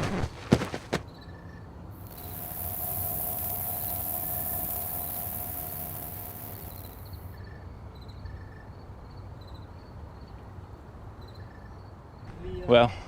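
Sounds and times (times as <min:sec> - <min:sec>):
insects buzzing: 0:00.0 - 0:01.4, 0:02.0 - 0:07.6
short insect chirps: 0:02.0 - 0:07.6.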